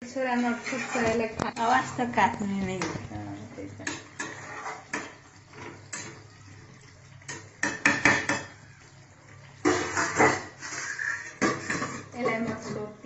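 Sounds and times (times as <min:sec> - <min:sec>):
spoon scraping and clinking pot: 0:00.2 - 0:03.0, 0:03.8 - 0:06.3, 0:09.6 - 0:12.9
spoon knocking against pot: 0:07.3 - 0:08.5.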